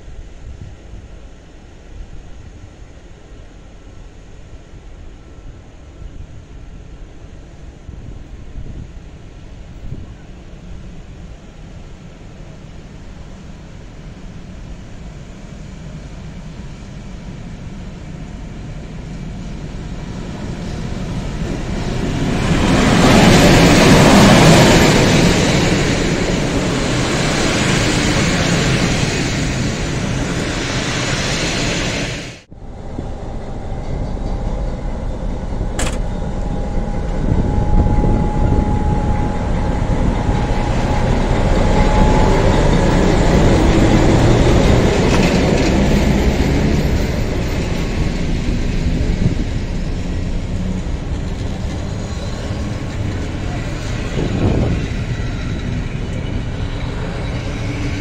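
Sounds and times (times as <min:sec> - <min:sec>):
train wheels rumbling on rails: 0:06.7 - 0:58.0
diesel locomotive running: 0:09.4 - 0:58.0
thin steady whine: 0:32.4 - 0:43.6.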